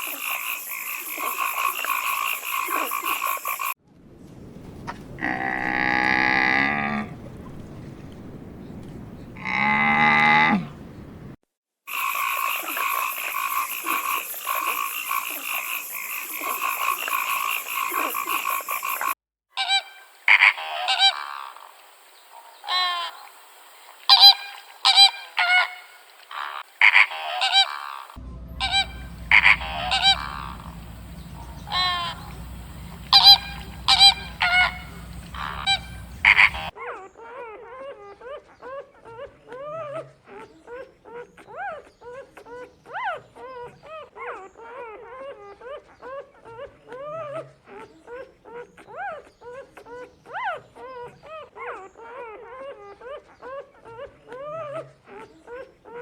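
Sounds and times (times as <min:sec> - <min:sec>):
drawn-out low animal call: 0:04.7 - 0:11.4, 0:27.1 - 0:36.7
dense chorus of calls: 0:11.9 - 0:36.7
short sharp animal calls: 0:24.1 - 0:36.7
low steady hum: 0:28.2 - 0:36.7.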